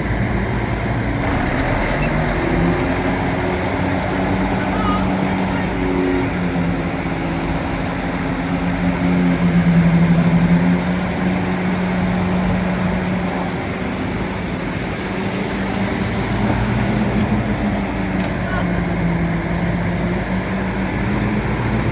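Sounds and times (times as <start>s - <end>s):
bulldozer diesel engine running: 1.2s - 4.3s.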